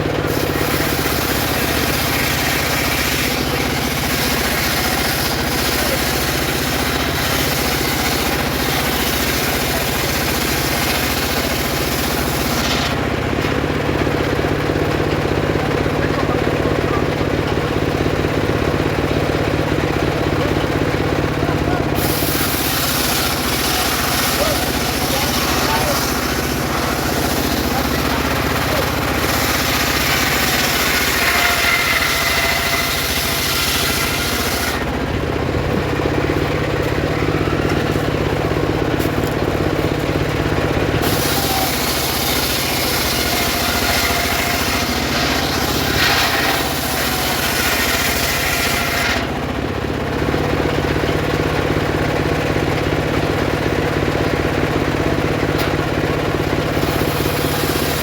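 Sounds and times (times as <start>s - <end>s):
circular saw blade cutting wood: 0.0s - 13.6s, 21.7s - 49.5s, 56.5s - 58.0s
machine humming: 21.4s - 50.1s.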